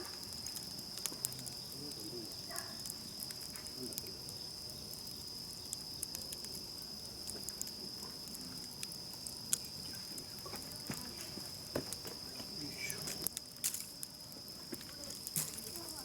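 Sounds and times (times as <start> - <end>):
campfire crackling and popping: 0.0 - 16.0
insects chirping: 0.0 - 16.0.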